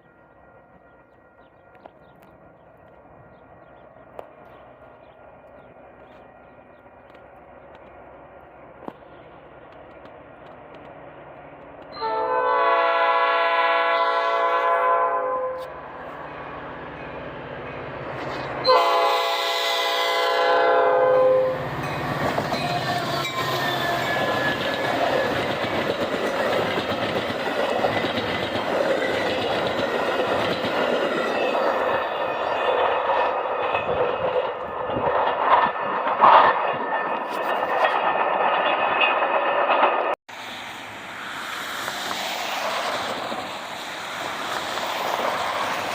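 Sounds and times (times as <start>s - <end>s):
train rolling rumble: 0.0s - 15.0s, 15.6s - 45.9s
train horn blasts: 11.9s - 15.8s, 18.6s - 21.7s.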